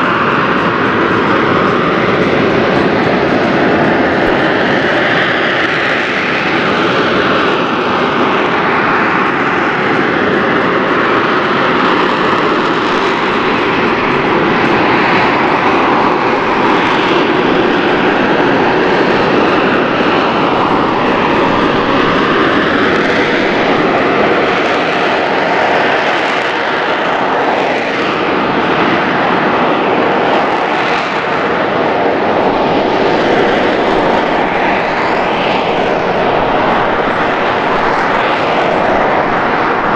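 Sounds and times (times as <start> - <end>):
jet engine roar with whine: 0.0 - 39.9.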